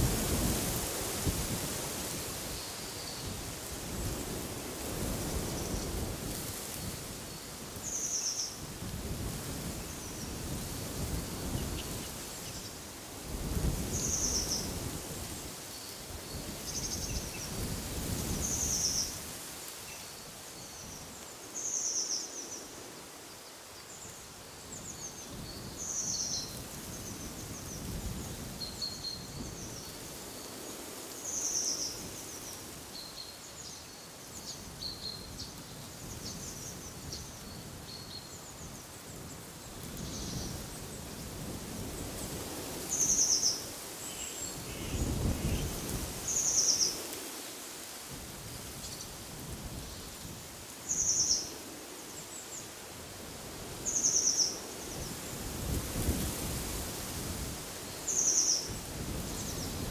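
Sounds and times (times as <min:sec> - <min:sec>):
wind rumbling on microphone: 0:00.0 - 0:19.6, 0:24.7 - 0:31.0, 0:34.4 - 0:47.3, 0:48.0 - 0:51.8, 0:52.9 - 0:59.9
small birds chirping: 0:53.8 - 0:55.1, 0:57.9 - 0:59.8.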